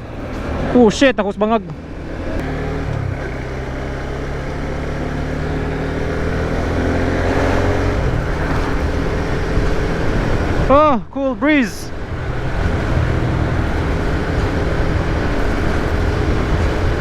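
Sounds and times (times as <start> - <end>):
motorcycle engine running: 0.0 - 10.7, 11.9 - 17.0
wind and road rush: 0.0 - 17.0.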